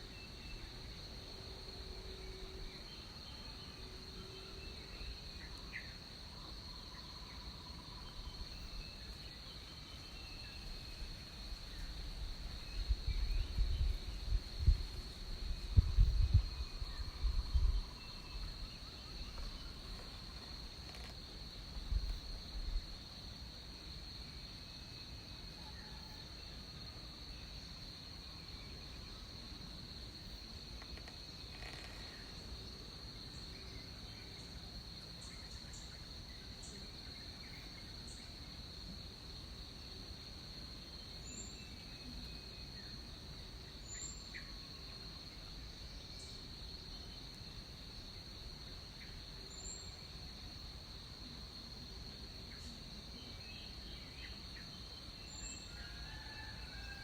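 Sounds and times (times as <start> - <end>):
insects trilling: 0.0 - 57.0.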